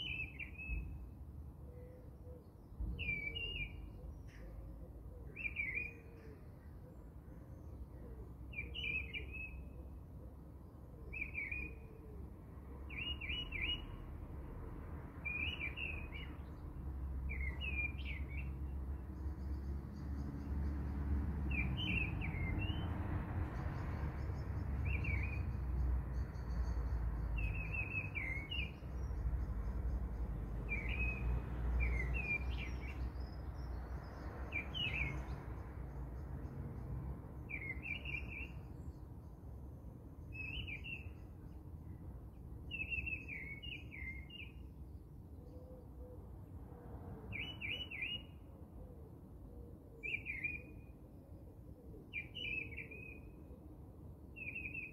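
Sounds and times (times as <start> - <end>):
bird chirping: 0.0 - 1.1, 1.7 - 7.8, 8.5 - 10.0, 11.0 - 11.9, 12.8 - 14.0, 15.2 - 20.9, 21.5 - 39.4, 40.2 - 42.0, 42.6 - 44.8, 47.3 - 48.4, 50.0 - 50.9, 52.1 - 53.4, 54.4 - 54.9.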